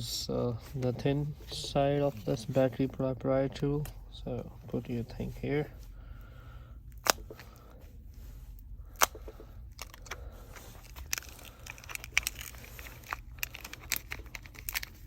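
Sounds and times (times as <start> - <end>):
steady low hum: 0.0 - 15.0
adhesive clicks and crackles: 9.0 - 15.0.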